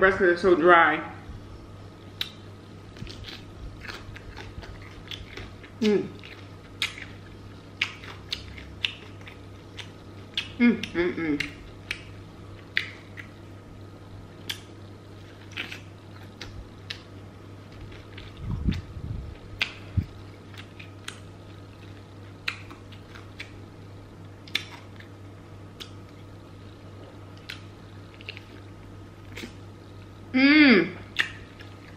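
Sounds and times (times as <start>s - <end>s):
steady low hum: 0.0s - 31.9s
crunching fried chicken: 2.2s - 10.6s, 14.4s - 29.6s
wet mouth clicks: 31.1s - 31.7s.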